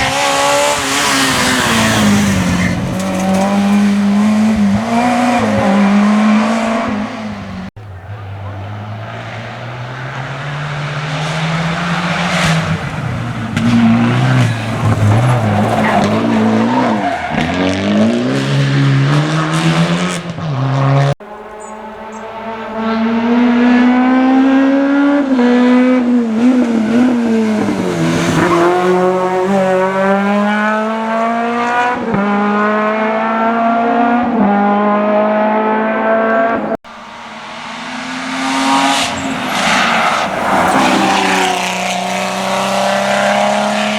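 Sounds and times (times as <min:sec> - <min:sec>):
rally car engines revving: 0:00.0 - 0:43.9
tyre noise on road: 0:00.0 - 0:43.9.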